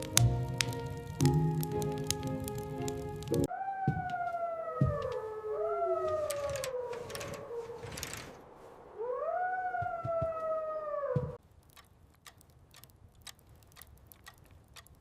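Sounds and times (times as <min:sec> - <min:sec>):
dog howling: 0:01.8 - 0:08.2, 0:09.0 - 0:11.4
low thumps: 0:04.8 - 0:05.2.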